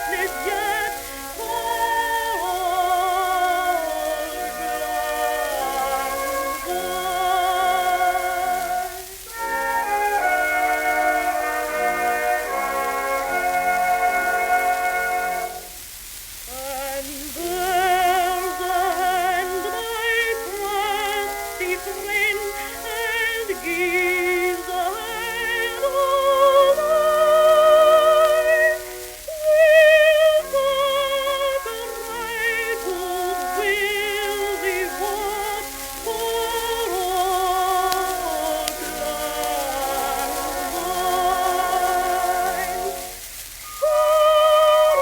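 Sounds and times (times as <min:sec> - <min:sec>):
old phonograph record music: 0:00.0 - 0:45.0
record surface hiss: 0:00.0 - 0:45.0.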